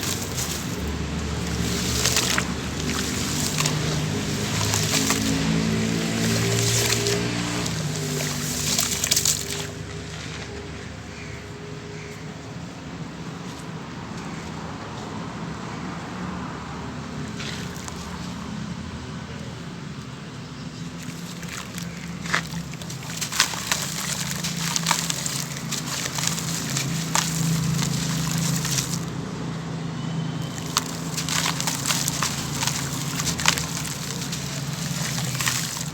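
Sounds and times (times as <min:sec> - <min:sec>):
fizzing hiss in water: 0:00.0 - 0:09.8, 0:21.0 - 0:29.1, 0:30.4 - 0:35.9.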